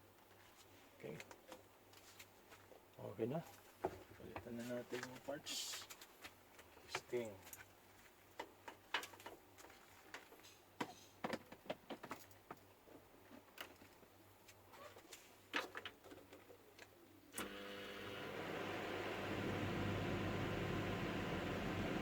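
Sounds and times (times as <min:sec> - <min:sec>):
microwave oven humming: 0:17.3 - 0:22.0.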